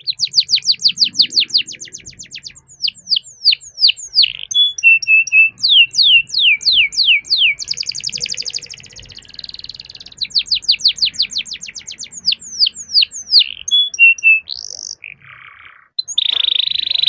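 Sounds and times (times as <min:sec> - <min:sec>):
canary singing: 0:00.0 - 0:17.0.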